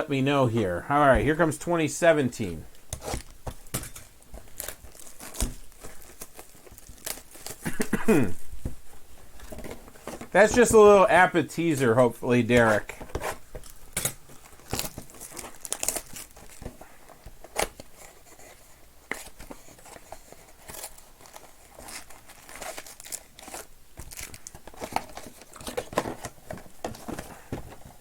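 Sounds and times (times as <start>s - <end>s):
wrappers crinkling: 2.4s - 28.0s
wrappers tearing: 3.0s - 7.8s, 12.5s - 16.6s, 20.5s - 25.9s.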